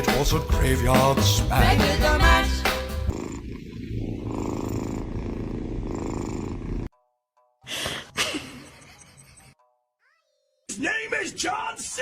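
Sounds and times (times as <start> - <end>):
cat purring: 3.0 - 6.9.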